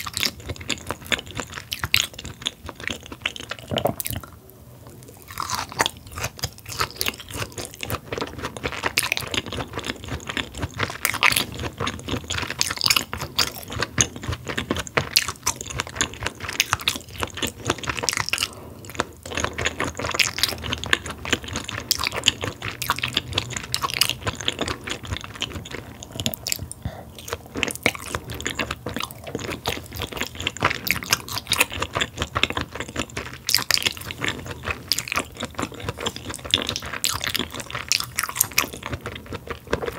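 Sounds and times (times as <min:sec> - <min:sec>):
wet chewing: 0:00.0 - 0:04.4, 0:05.0 - 0:39.9.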